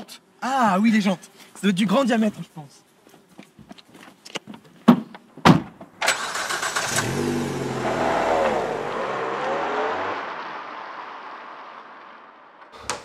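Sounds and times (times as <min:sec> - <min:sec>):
sharp clunks: 0:04.8 - 0:06.0, 0:12.7 - 0:13.0
car engine starting and accelerating: 0:06.0 - 0:13.0.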